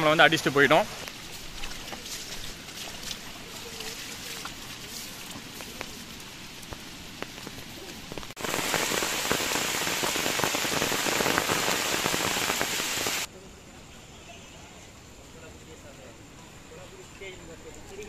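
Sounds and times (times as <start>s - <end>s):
rain falling: 0.0s - 13.3s
raindrops ticking: 0.9s - 13.3s.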